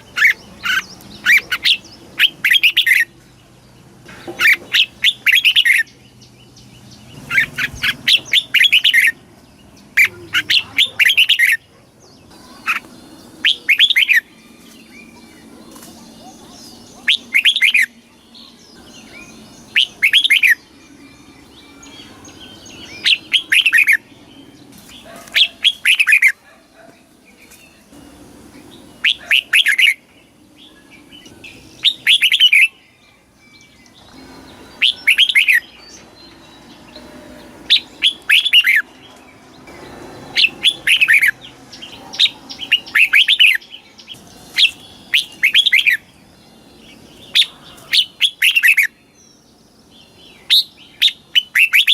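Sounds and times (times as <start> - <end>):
bulbul singing whistled notes: 16.2 - 26.4, 30.7 - 39.0, 39.8 - 49.1, 49.8 - 51.9.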